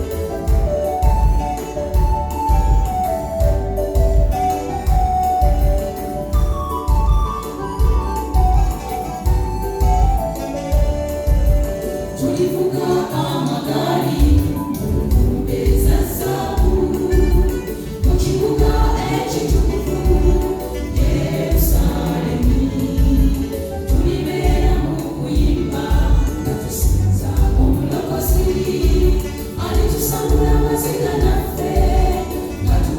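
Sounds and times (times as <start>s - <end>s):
gospel choir singing: 0.0s - 32.9s
steady drum beat: 13.6s - 32.9s.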